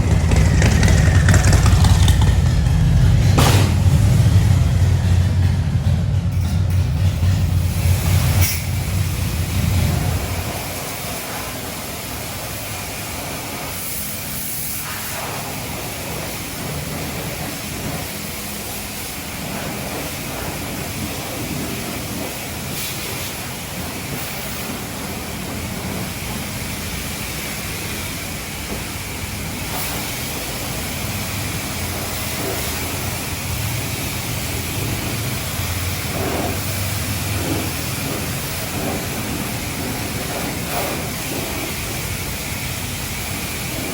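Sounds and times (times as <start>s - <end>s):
low rumble: 0.0s - 10.6s
pressure wand spraying water: 6.8s - 43.9s.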